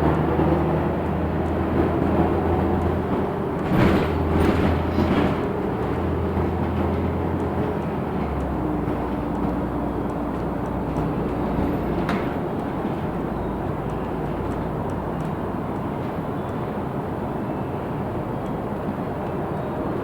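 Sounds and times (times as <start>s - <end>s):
bus engine hum: 0.0s - 20.0s
road noise: 0.0s - 20.0s.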